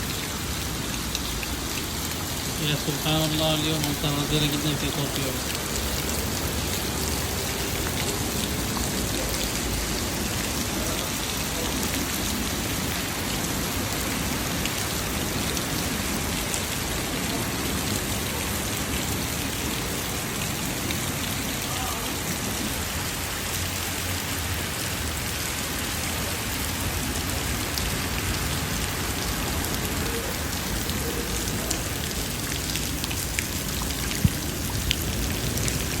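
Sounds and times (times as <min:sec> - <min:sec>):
heavy rain falling: 0:00.0 - 0:36.0
sharp drip-like taps: 0:00.9 - 0:11.7, 0:32.6 - 0:35.8.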